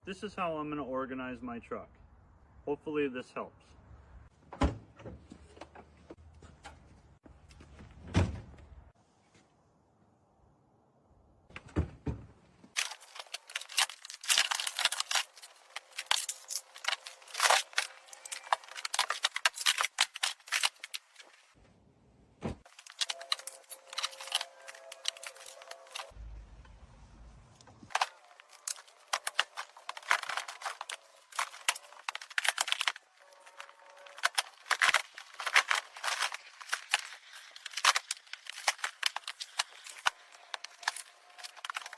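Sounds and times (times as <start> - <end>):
tools clattering: 12.8 - 21.2, 27.9 - 41.9.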